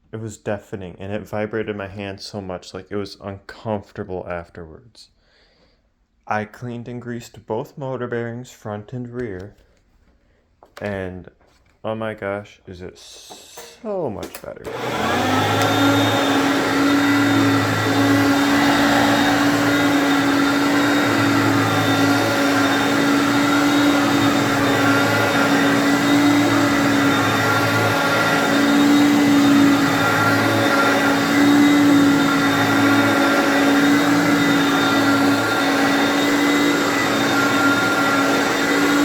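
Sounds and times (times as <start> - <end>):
vacuum cleaner motor humming: 13.3 - 39.0.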